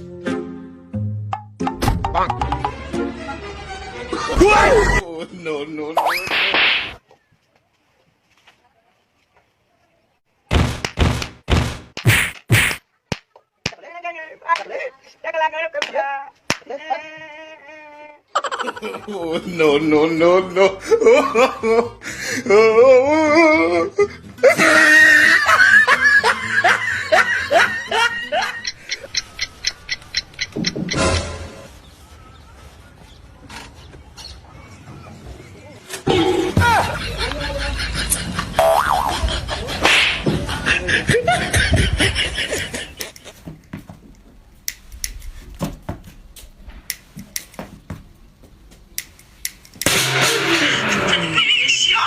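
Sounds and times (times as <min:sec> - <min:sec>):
person laughing loudly: 0:18.3 - 0:29.6, 0:36.6 - 0:43.5, 0:50.6 - 0:52.0
wavering drawn-out cry: 0:22.4 - 0:25.6.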